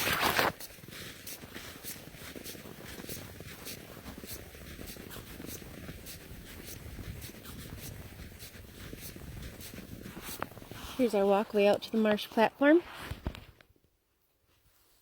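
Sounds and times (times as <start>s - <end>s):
footsteps crunching through snow: 0.0s - 13.6s.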